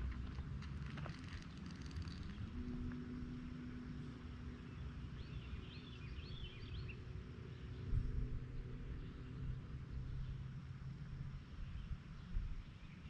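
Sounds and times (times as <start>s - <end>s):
outdoor rumble: 0.0s - 5.8s.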